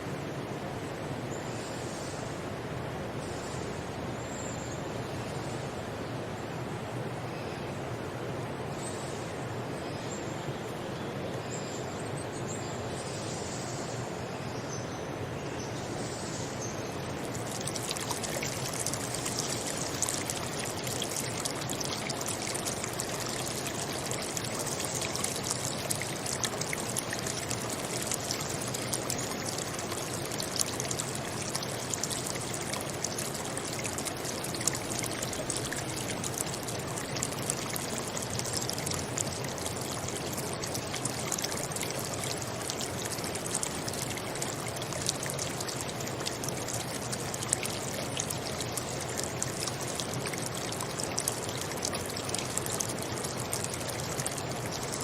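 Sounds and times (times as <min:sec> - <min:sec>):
stream water splashing: 0:16.8 - 0:55.0.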